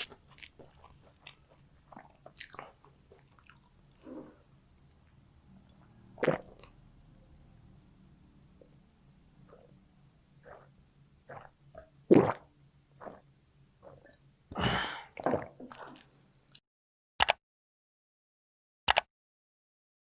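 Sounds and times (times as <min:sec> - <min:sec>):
wet chewing and smacking: 0:00.0 - 0:04.1.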